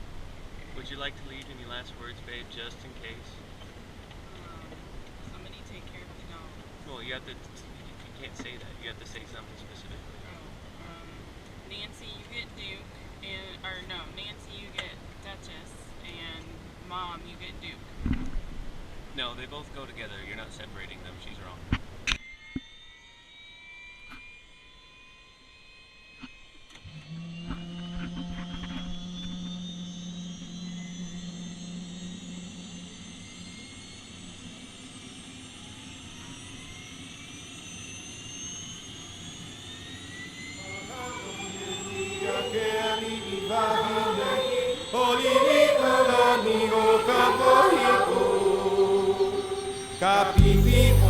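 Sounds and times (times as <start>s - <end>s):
helicopter turbine whine: 0.0s - 51.0s.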